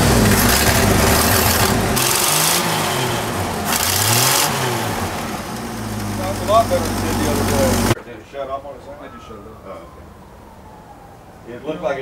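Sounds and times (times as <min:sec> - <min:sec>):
deep steady rumble: 0:00.0 - 0:03.8
car engine running unevenly: 0:00.0 - 0:08.0.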